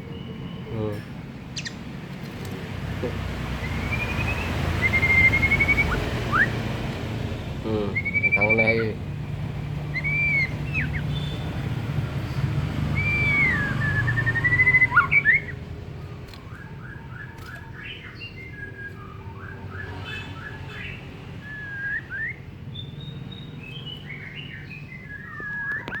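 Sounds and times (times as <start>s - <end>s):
bird singing whistled notes: 0.0s - 0.8s, 1.6s - 1.8s, 3.6s - 6.6s, 7.9s - 9.0s, 9.9s - 15.6s, 16.3s - 26.0s.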